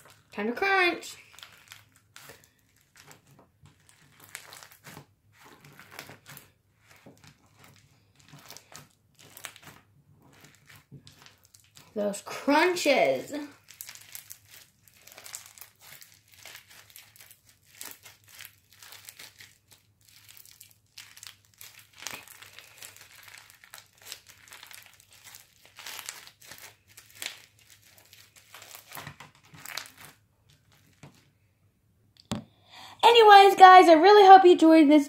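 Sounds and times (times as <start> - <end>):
bead slime crackling and popping: 0.0 - 31.3.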